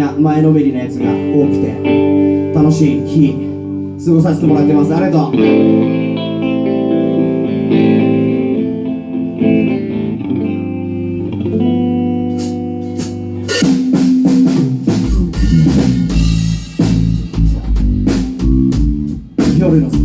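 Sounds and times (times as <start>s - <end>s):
bass guitar: 0.0s - 20.0s
guitar chords: 0.0s - 20.0s
drums: 11.0s - 20.0s.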